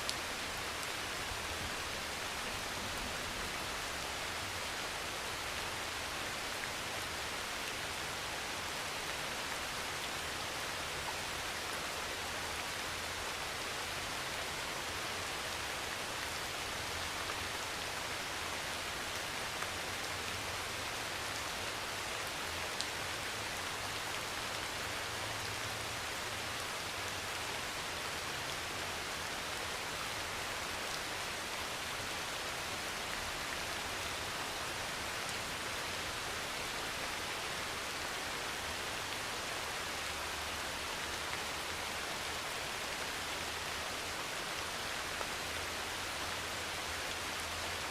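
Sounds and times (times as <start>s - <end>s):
heavy rain on a metal roof: 0.0s - 47.9s.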